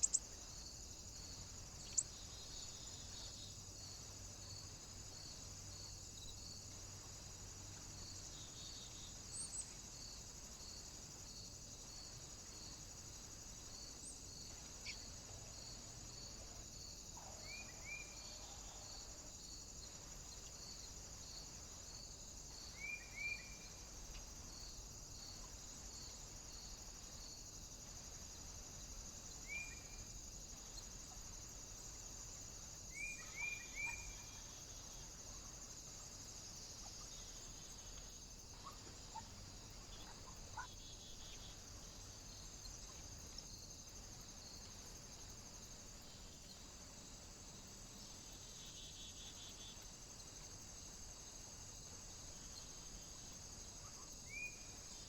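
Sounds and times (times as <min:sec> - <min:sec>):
small birds chirping: 0:00.0 - 0:00.5, 0:01.8 - 0:03.5
steady high hiss: 0:00.0 - 0:55.0.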